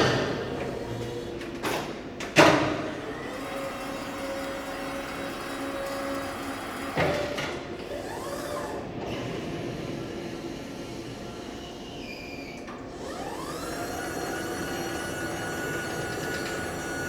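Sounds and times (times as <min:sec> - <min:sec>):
constant mechanical hum: 0:00.0 - 0:17.0.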